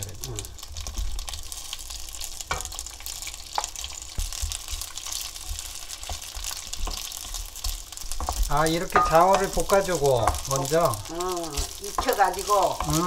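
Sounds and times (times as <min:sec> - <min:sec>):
fish sizzling in hot oil: 0:00.0 - 0:13.0
wooden spatula knocking pan: 0:03.6 - 0:10.6.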